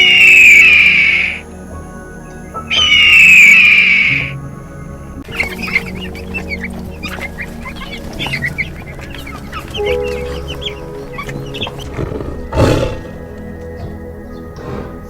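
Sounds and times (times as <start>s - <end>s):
short high bird calls: 0.0s - 1.4s, 2.7s - 4.3s
background music: 0.0s - 15.0s.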